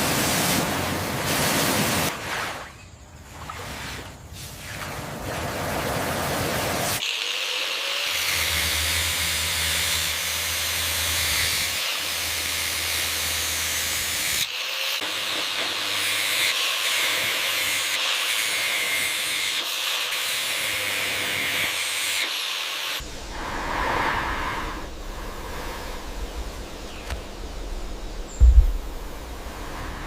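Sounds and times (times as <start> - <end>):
low hum: 23.0 - 30.0.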